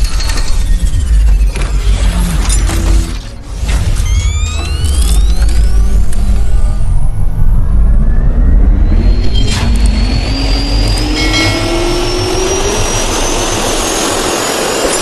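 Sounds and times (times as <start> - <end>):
jet engines spooling up: 8.0 - 15.0.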